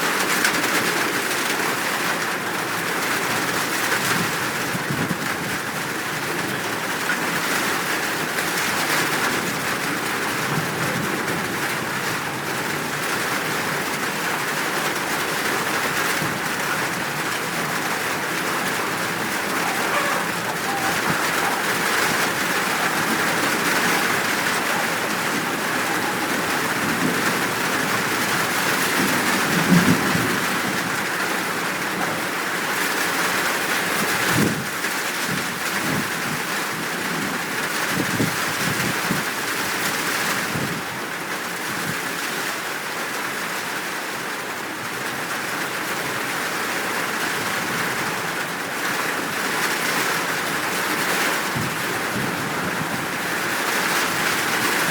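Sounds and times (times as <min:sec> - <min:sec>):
heavy rain: 0:00.0 - 0:54.9
thunder rumbling: 0:08.5 - 0:32.5.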